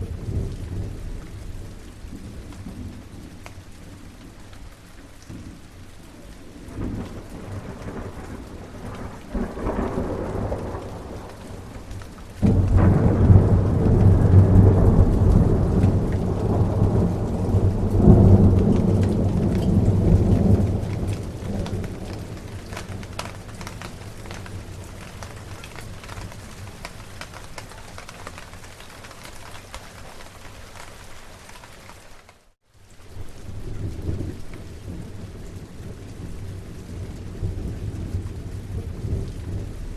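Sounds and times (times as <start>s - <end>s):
steady rain: 0.0s - 39.9s
rolling thunder: 6.5s - 27.5s
loud thunderclap: 6.7s - 26.8s.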